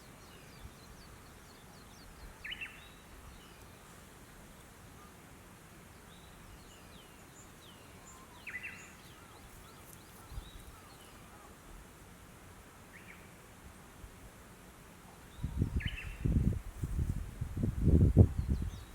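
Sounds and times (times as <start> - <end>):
faint bird chirps: 6.1 - 11.6.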